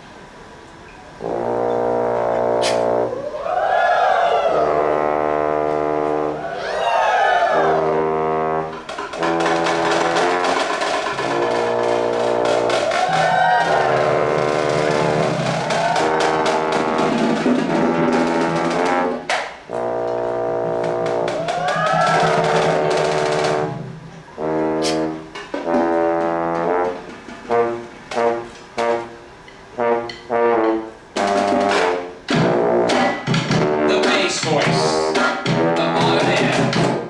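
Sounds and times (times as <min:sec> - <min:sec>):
brass band playing chords: 0:01.2 - 0:37.0
drum: 0:07.6 - 0:37.0.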